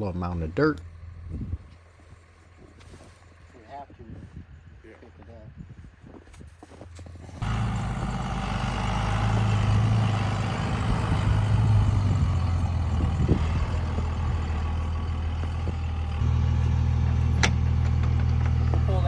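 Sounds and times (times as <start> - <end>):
truck engine running: 0.0 - 3.6, 7.1 - 19.0.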